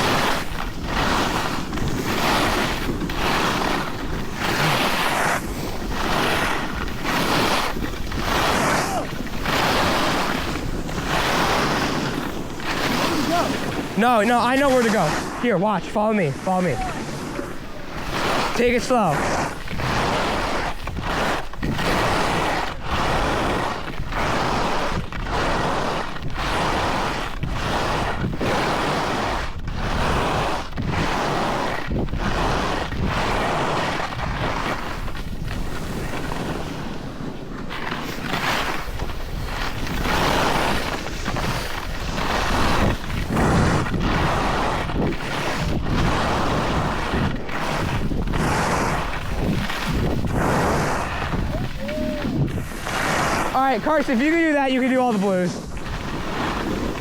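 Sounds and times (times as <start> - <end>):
skis scraping on packed snow: 0.0 - 57.0
wind on microphone: 16.3 - 57.0.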